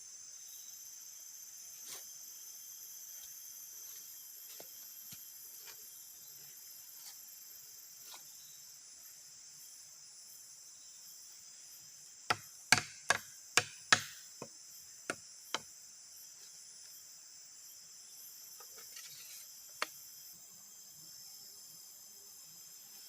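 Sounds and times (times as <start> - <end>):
forest insects chirring: 0.0 - 23.0
tool striking wood: 12.3 - 14.5.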